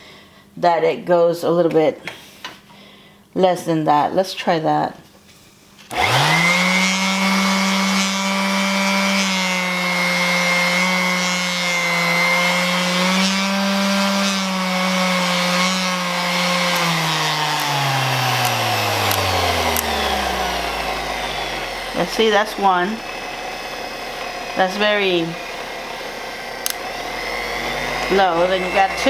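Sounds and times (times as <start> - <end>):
orbital sander running: 5.9 - 29.0.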